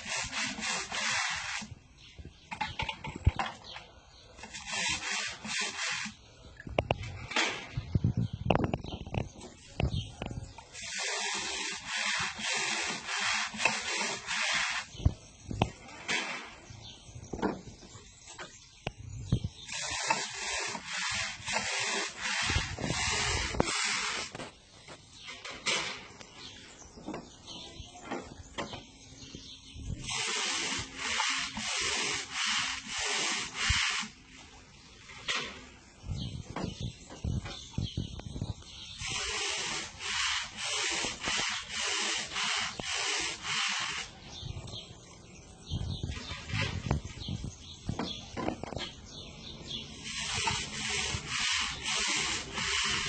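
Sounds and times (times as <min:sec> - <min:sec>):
scrubbing bird cage: 0:00.0 - 0:01.8, 0:04.4 - 0:06.3, 0:10.7 - 0:16.4, 0:19.5 - 0:24.5, 0:30.0 - 0:34.4, 0:38.6 - 0:44.4, 0:49.7 - 0:53.0
small knocks and rustles: 0:02.5 - 0:03.9, 0:23.5 - 0:29.5, 0:45.9 - 0:49.0.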